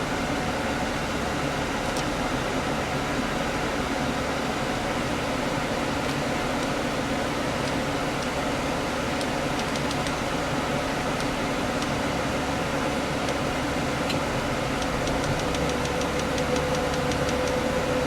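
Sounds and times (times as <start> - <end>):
fast light ticking: 9.2 - 10.2, 14.1 - 17.6.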